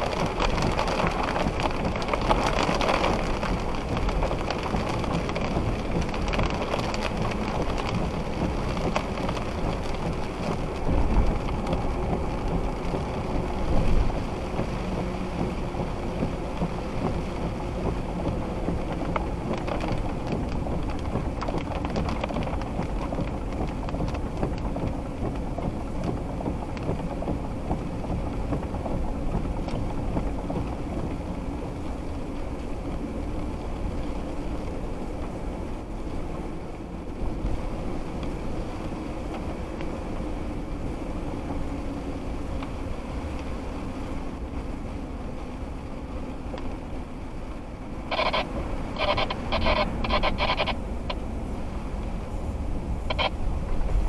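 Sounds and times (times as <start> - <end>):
low thunder rumbles: 0.0 - 22.0
heavy rain falling: 0.0 - 54.0.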